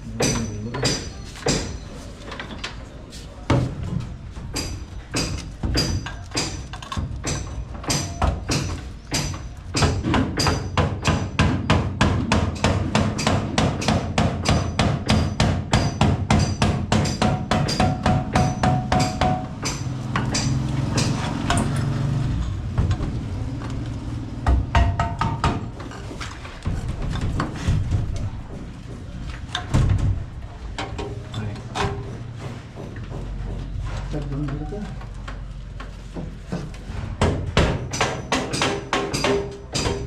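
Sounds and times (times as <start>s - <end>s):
rapid hammering: 0.0s - 1.8s, 4.5s - 21.6s, 24.4s - 25.8s, 36.5s - 40.0s.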